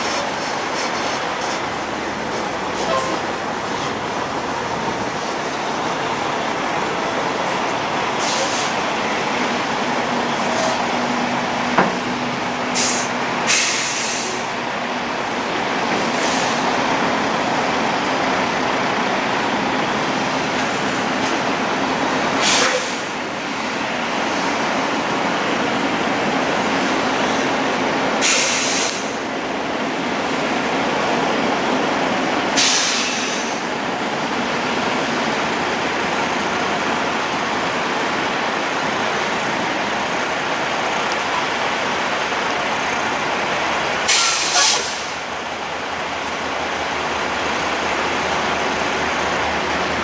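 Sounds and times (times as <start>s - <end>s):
heavy truck engines and road noise: 0.0s - 50.0s
air brake hisses: 8.2s - 8.8s, 12.8s - 14.4s, 16.1s - 16.6s, 22.4s - 23.1s, 28.2s - 29.2s, 32.6s - 33.6s, 44.1s - 45.2s.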